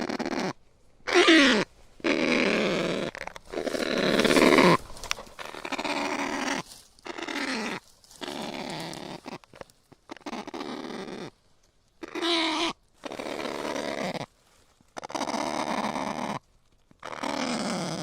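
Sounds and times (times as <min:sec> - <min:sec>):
bird rasping calls: 0:00.0 - 0:11.3, 0:12.0 - 0:14.2.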